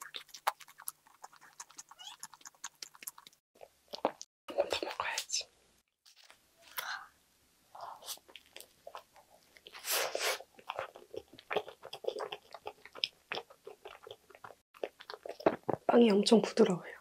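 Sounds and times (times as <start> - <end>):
chewing with wet mouth clicks: 0.0 - 4.3, 8.1 - 9.8, 10.6 - 15.8.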